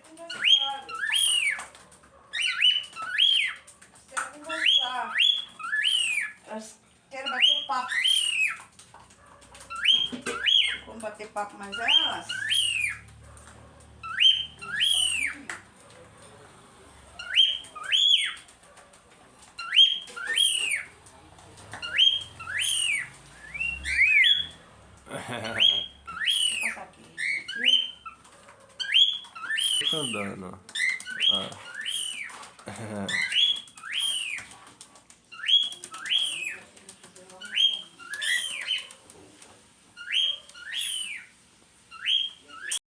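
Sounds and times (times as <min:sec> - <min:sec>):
cockatiel whistling calls: 0:00.3 - 0:01.7, 0:02.3 - 0:03.6, 0:04.6 - 0:06.4, 0:07.3 - 0:08.7, 0:09.7 - 0:10.9, 0:11.7 - 0:13.1, 0:14.0 - 0:15.4, 0:17.2 - 0:18.5, 0:19.6 - 0:20.9, 0:21.8 - 0:24.6, 0:25.5 - 0:28.2, 0:28.8 - 0:32.4, 0:33.1 - 0:34.6, 0:35.3 - 0:36.6, 0:37.4 - 0:39.0, 0:40.0 - 0:41.3, 0:41.9 - 0:42.8.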